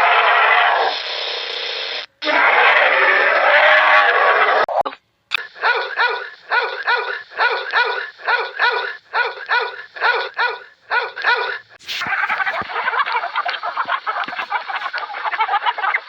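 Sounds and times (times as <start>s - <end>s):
dog yipping: 5.6s - 13.1s.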